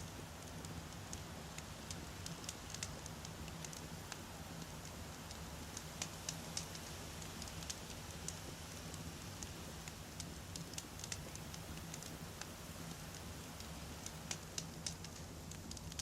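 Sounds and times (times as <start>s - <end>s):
burning logs crackling and popping: 0.0s - 16.0s
low rumble of flame: 0.0s - 16.0s.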